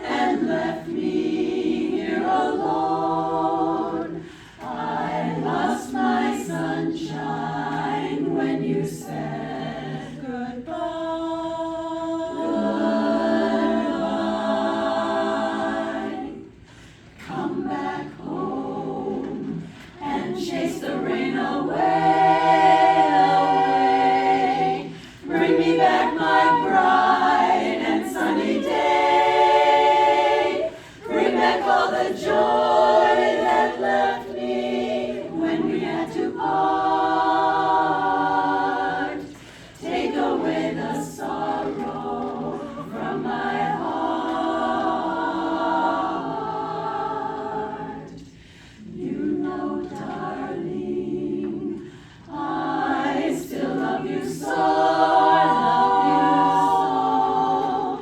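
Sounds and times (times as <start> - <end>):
a cappella group singing: 0.0 - 58.0
singers breathing: 4.2 - 4.7, 16.6 - 17.2, 24.9 - 25.3, 30.7 - 31.0, 39.3 - 39.8, 48.3 - 48.9, 51.8 - 52.3.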